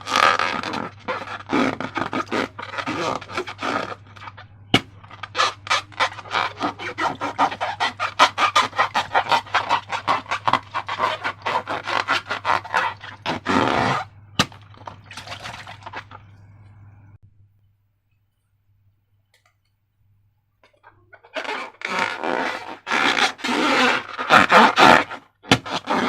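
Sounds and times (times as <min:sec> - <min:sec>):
slime rasp: 0:00.0 - 0:16.1, 0:21.2 - 0:26.0.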